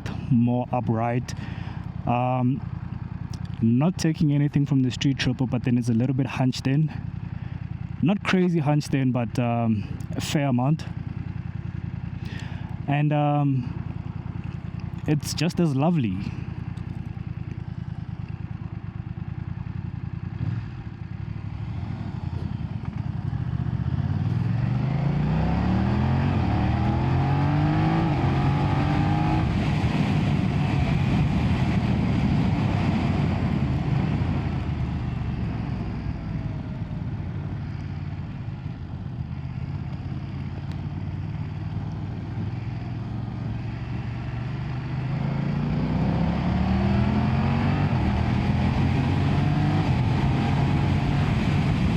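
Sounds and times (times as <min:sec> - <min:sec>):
motorcycle engine revving through gears: 0:10.9 - 0:13.0, 0:16.4 - 0:51.9.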